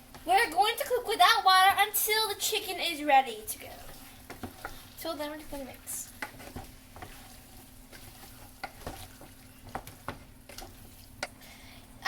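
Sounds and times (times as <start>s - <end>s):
faint sizzle: 0.0s - 12.0s
spoon scraping a pot: 6.1s - 11.3s.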